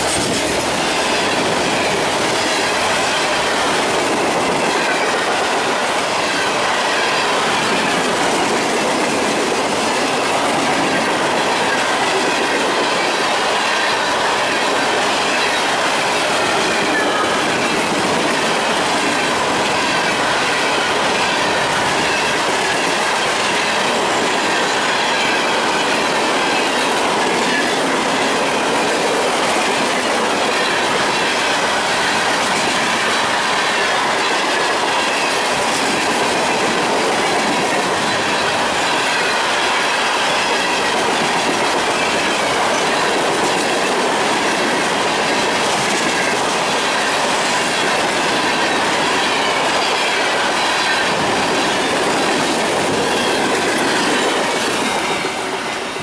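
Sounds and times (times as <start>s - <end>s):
freight train wheels on rail: 0.0s - 56.0s.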